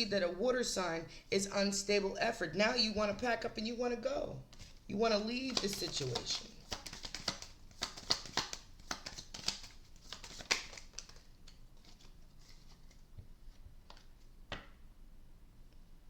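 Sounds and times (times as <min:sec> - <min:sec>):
cards being shuffled: 0:04.5 - 0:14.6.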